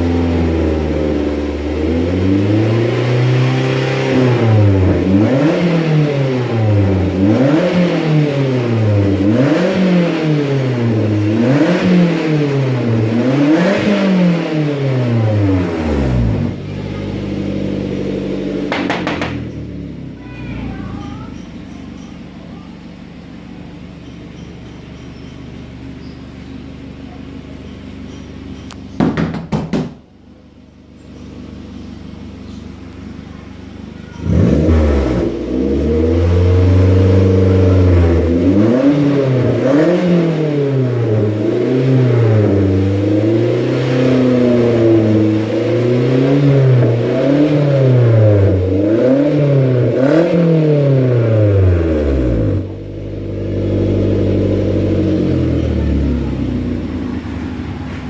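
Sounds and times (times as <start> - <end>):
car engine idling and revving: 0.0 - 58.0
sharp knocks: 18.7 - 19.6, 29.0 - 30.1.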